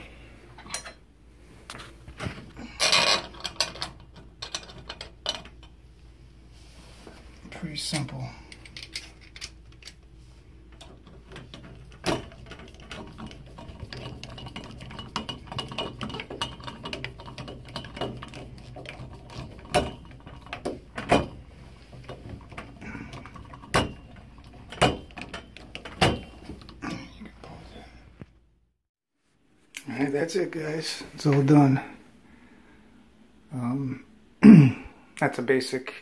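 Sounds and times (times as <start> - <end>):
clicks and taps of handled parts: 8.0 - 10.0.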